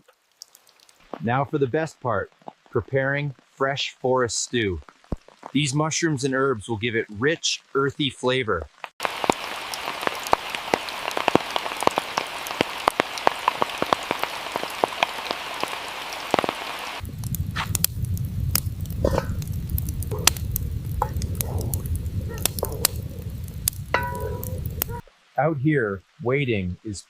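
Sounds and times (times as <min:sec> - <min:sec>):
rain falling: 0:00.0 - 0:27.0
low steady rumble: 0:17.0 - 0:25.0.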